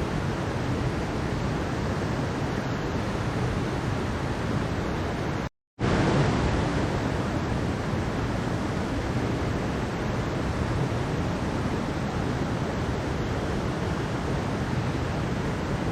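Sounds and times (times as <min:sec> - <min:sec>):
stream water rushing: 0:00.0 - 0:15.9.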